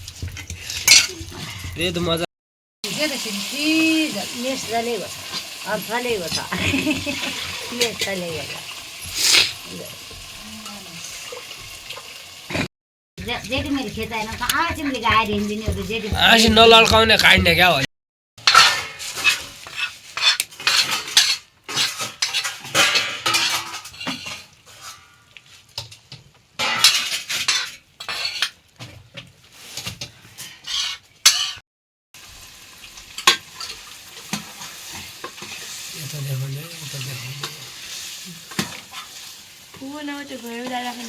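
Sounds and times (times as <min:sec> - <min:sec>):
metal spoon scraping a pan: 0:00.0 - 0:01.8, 0:18.4 - 0:28.6, 0:29.4 - 0:31.6, 0:33.0 - 0:36.0, 0:36.7 - 0:41.0
food sizzling in a pan: 0:02.8 - 0:16.4, 0:18.4 - 0:31.6, 0:32.2 - 0:41.0.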